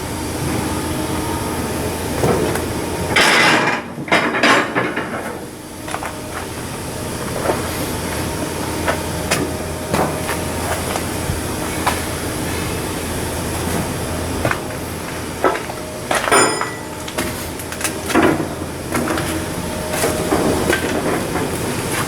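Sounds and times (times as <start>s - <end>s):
machinery hum: 0.0s - 22.0s
metal clanks and knocks: 3.1s - 6.0s, 15.4s - 21.6s.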